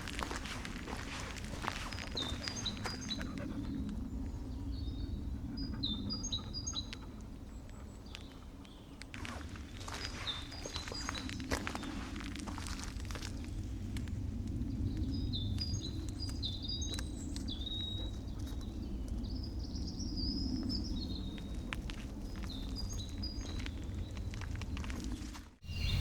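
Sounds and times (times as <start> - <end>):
bird singing whistled phrases: 25.7 - 26.0.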